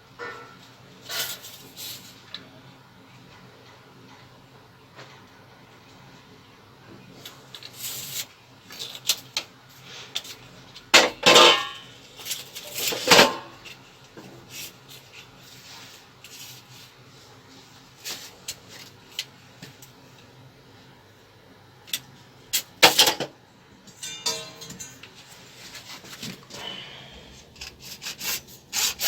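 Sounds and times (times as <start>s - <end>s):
metal objects clattering: 11.0s - 13.6s, 23.9s - 25.0s
metal objects clinking: 23.9s - 25.0s.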